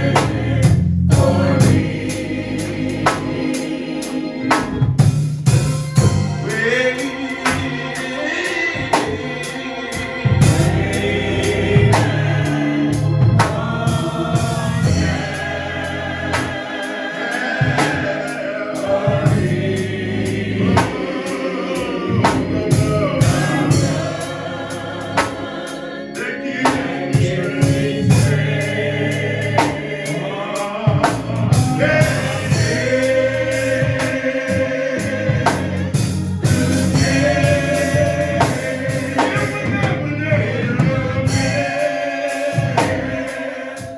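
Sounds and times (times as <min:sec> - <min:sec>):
bass line: 0:00.0 - 0:03.5, 0:04.6 - 0:06.9, 0:10.0 - 0:16.7, 0:17.6 - 0:21.2, 0:21.8 - 0:25.6, 0:26.9 - 0:30.0, 0:30.9 - 0:41.8
gospel choir singing: 0:00.0 - 0:43.9
keyboard: 0:00.0 - 0:43.9
steady drum beat: 0:00.0 - 0:43.9.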